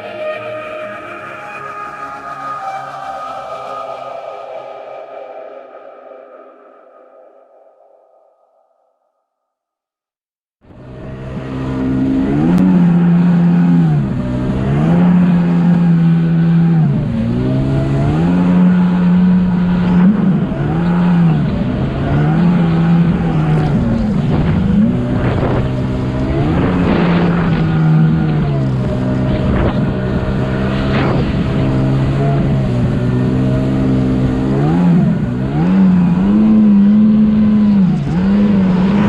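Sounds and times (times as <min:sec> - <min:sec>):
jet ski engine revving: 0:10.7 - 0:39.0.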